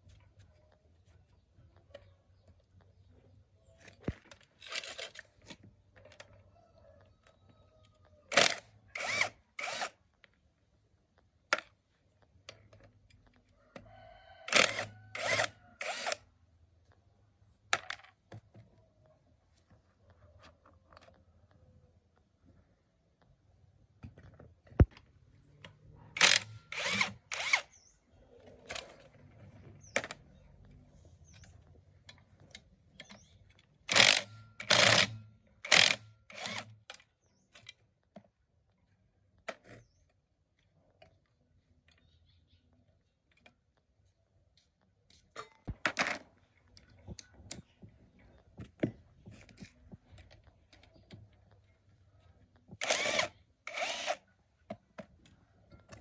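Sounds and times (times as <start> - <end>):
power drill bursts: 8.3 - 10.0, 14.5 - 16.2, 26.2 - 27.8, 33.9 - 36.7, 52.8 - 54.2
sharp clicks: 8.3 - 10.0, 25.6 - 27.8, 33.9 - 37.7, 52.8 - 54.2.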